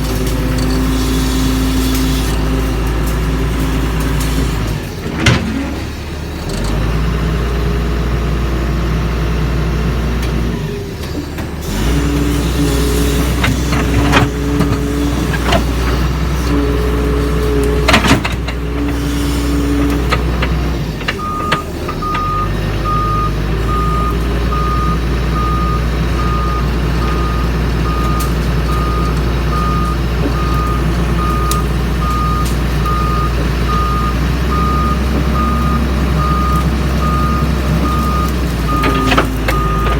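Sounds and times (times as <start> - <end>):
excavator diesel engine running: 0.0 - 39.9
hydraulic whine: 11.1 - 39.9
travel alarm beeping: 21.2 - 39.9.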